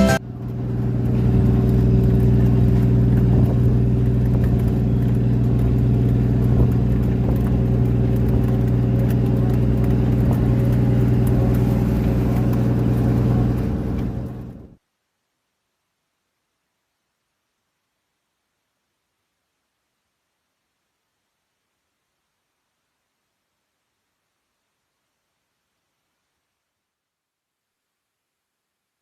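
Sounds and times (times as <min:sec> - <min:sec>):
boat engine droning: 0:00.0 - 0:14.8.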